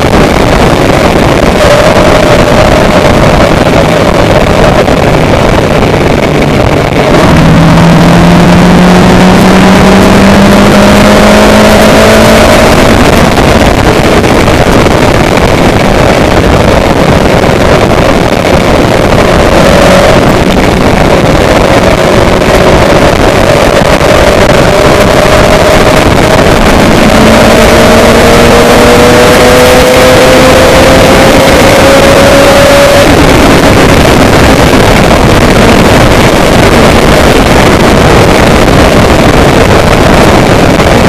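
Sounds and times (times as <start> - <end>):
vehicle engine rushing: 0.0 - 41.0.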